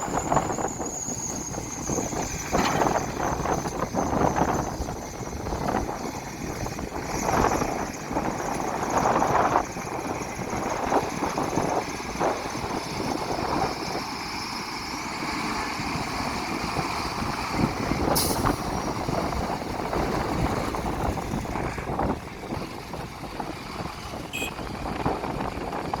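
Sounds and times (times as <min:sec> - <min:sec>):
heavy trucks and machinery running: 0:00.0 - 0:26.0
short hiss: 0:18.2 - 0:18.6.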